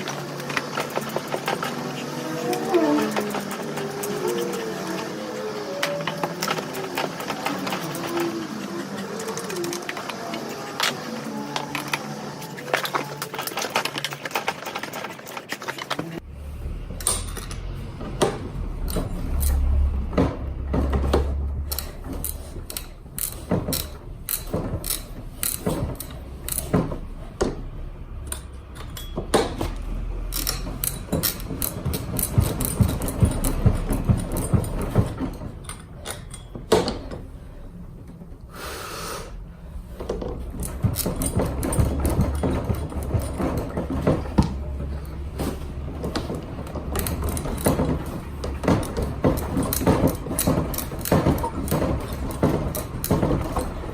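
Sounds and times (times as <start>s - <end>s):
tools and metal parts clanking: 0.0s - 38.4s, 39.9s - 53.9s.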